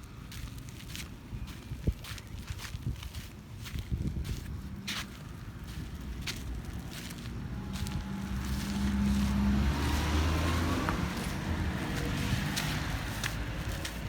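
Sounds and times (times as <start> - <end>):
car driving past: 6.7 - 14.0.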